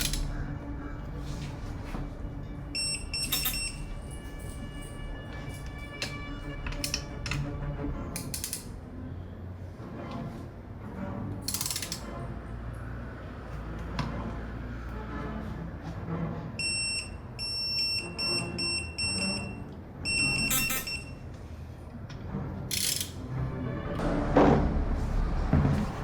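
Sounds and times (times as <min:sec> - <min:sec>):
short electronic beeps: 0:02.8 - 0:03.8, 0:16.6 - 0:21.2.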